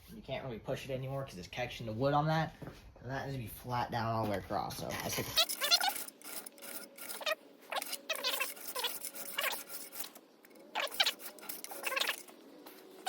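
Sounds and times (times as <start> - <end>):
file scraping on steel with squeal: 5.4 - 12.4.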